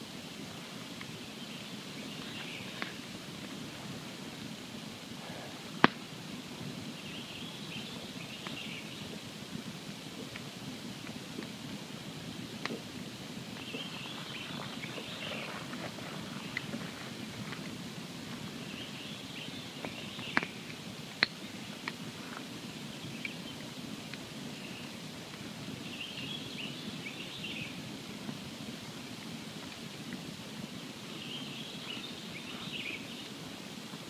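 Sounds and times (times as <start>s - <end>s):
campfire crackling and hissing: 0.0s - 34.0s
sharp pops of fire: 5.7s - 6.8s.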